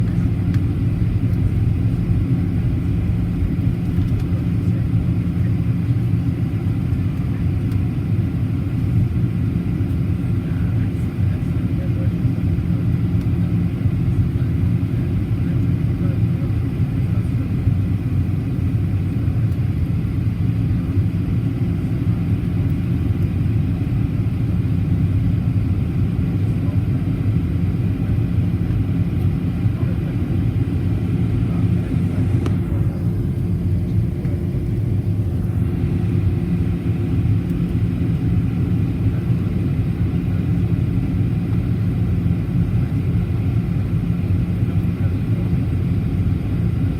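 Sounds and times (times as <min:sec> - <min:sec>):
airflow noise: 0:00.0 - 0:05.5
jet engine hum: 0:00.0 - 0:46.9.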